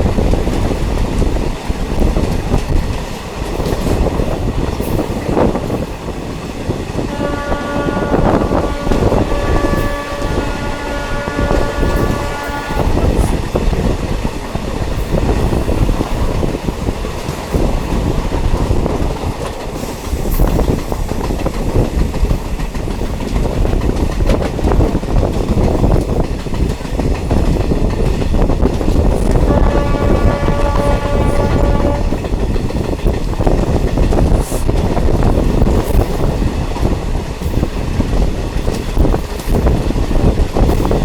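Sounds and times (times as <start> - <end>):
train rumbling on rails: 0.0 - 41.0
multi-note tone: 7.1 - 13.1.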